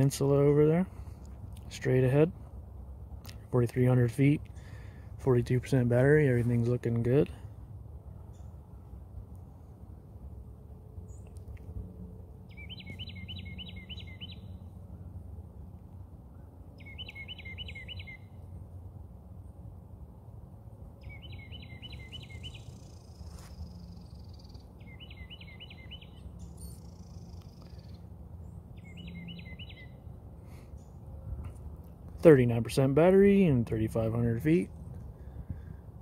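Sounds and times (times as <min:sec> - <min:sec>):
songbird singing short phrase: 0:12.5 - 0:14.7, 0:16.8 - 0:18.4, 0:21.0 - 0:30.1.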